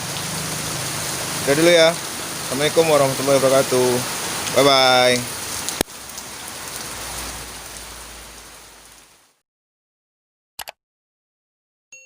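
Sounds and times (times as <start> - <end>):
heavy rain hissing: 0.0 - 9.4.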